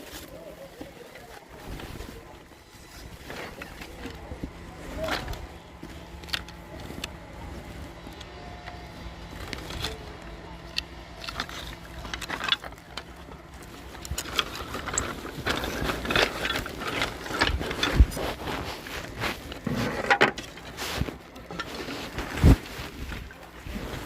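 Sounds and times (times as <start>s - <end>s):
wood knocking and clattering: 19.7s - 20.6s.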